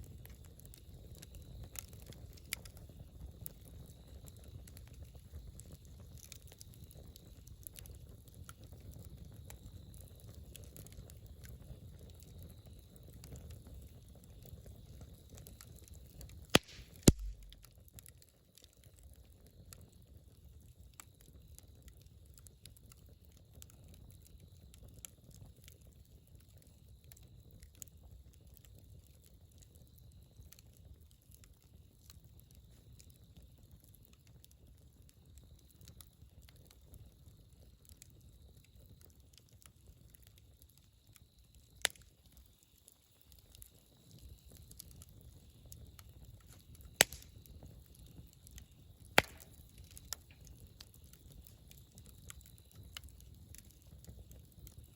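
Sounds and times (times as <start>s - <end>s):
campfire crackling: 0.0s - 54.9s
sharp loud pops: 16.6s - 17.6s.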